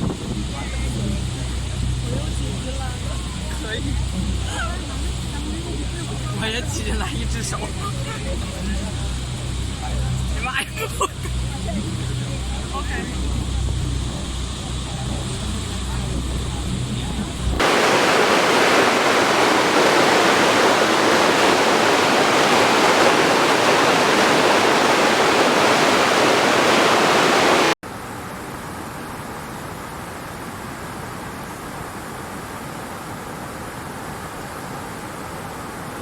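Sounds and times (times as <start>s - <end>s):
duller steady rush: 0.0s - 36.0s
waterfall rushing: 17.6s - 27.8s.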